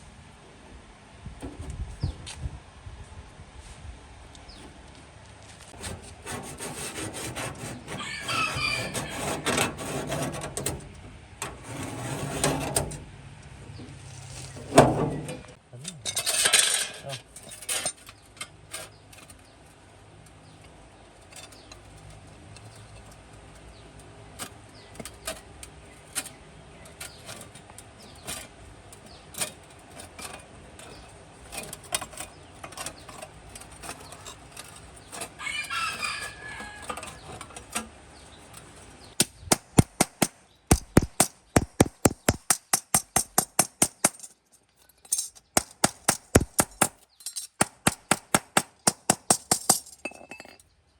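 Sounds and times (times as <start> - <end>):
sharp hammer blows on metal: 39.2 - 44.3, 45.6 - 47.0.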